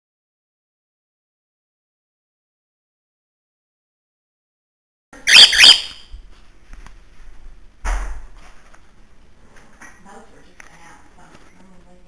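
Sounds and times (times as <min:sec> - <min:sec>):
bird whistling warbling notes: 0:05.2 - 0:06.1
harsh bird squawk: 0:05.2 - 0:06.1.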